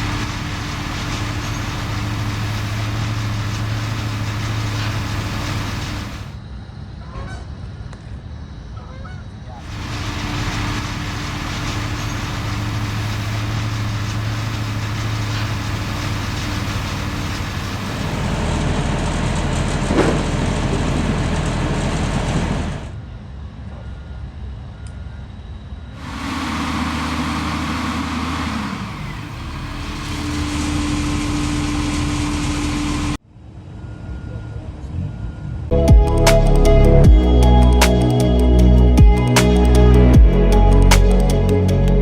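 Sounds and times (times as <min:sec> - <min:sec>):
truck engines idling: 0:00.0 - 0:06.4, 0:09.6 - 0:23.0, 0:26.0 - 0:33.2, 0:35.7 - 0:42.0.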